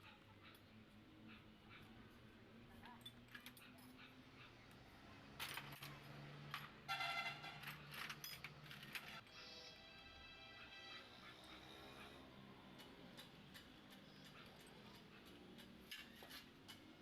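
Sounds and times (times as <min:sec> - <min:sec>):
metal tools clinking: 0:07.4 - 0:09.2.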